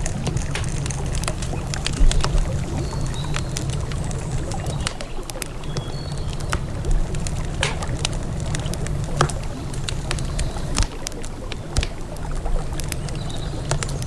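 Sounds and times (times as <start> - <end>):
river water rushing: 0.0 - 13.6
campfire crackling and popping: 0.0 - 14.0.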